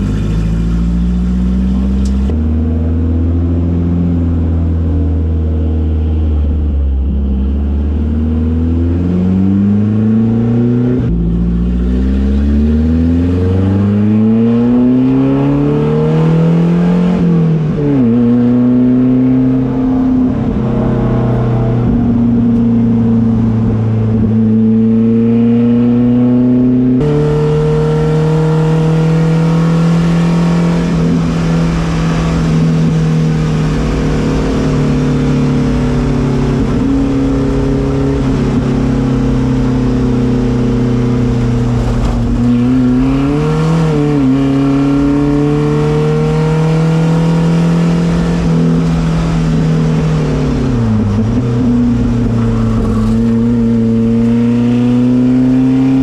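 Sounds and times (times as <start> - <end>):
race car engine running hard: 27.0 - 56.0.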